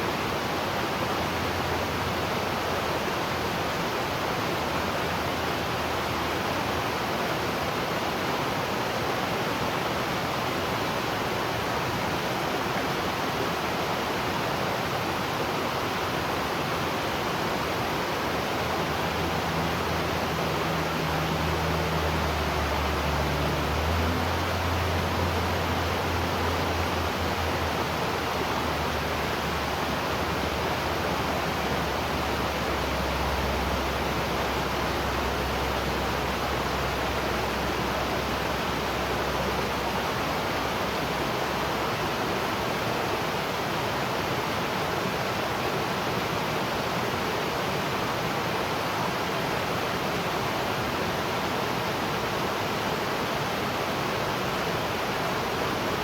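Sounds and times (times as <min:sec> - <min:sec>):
waterfall rushing: 0:16.0 - 0:43.0
low hum: 0:18.4 - 0:39.4.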